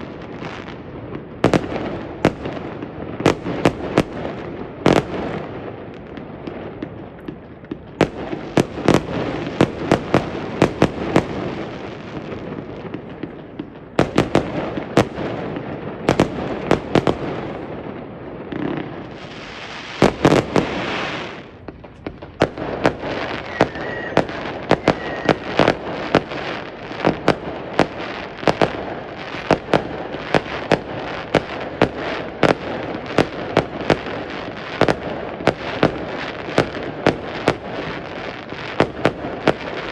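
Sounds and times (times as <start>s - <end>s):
fireworks bangs and crackles: 0.0s - 39.9s
fireworks hissing: 19.0s - 21.7s, 22.6s - 30.9s.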